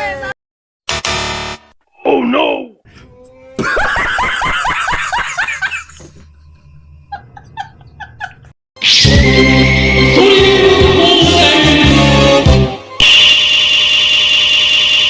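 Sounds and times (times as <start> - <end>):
cartoon laughter chirps: 3.6 - 6.2, 7.1 - 8.6
loud music: 8.8 - 13.1.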